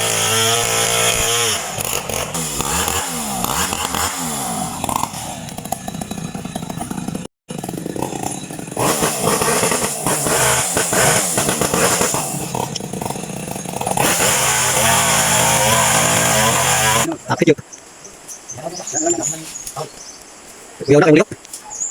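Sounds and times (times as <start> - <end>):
chainsaw cutting wood: 0.0 - 17.1.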